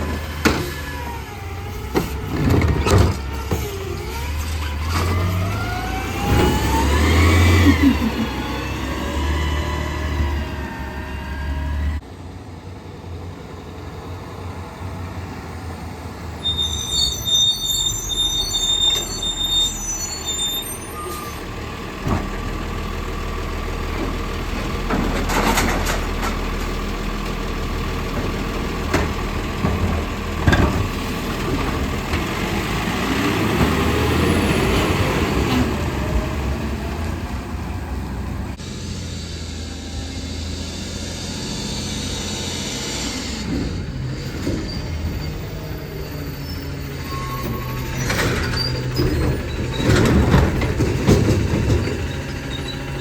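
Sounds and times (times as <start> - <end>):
diesel engine running: 18.6 - 53.0.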